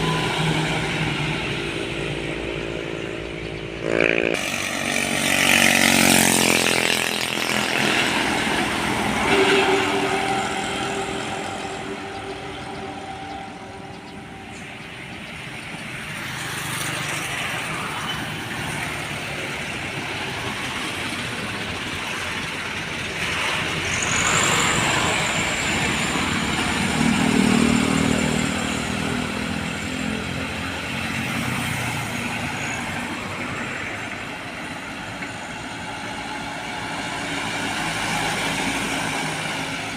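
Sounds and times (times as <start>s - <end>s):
vehicles driving past: 0.0s - 39.9s.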